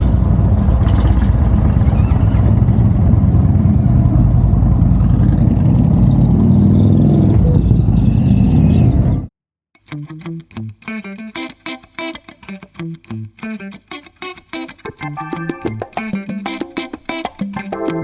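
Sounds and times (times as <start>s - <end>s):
motorcycle engine rumbling: 0.0s - 9.3s.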